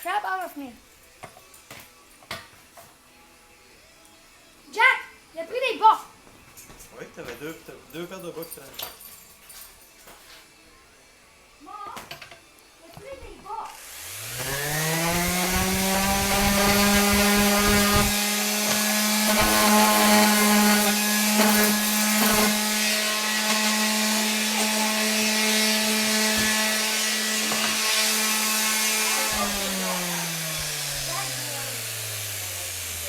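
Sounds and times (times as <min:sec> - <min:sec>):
power tool motor: 0:13.7 - 0:33.0.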